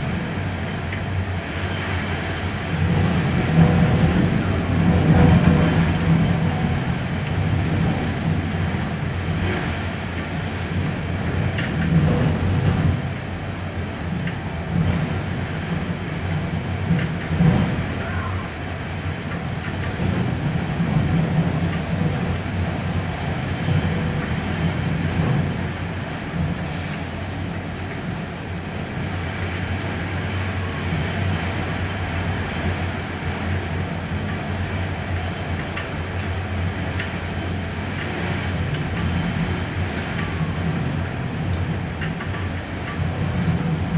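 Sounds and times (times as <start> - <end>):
gusting wind rumble: 0.0 - 43.9
light ticks: 35.1 - 37.2.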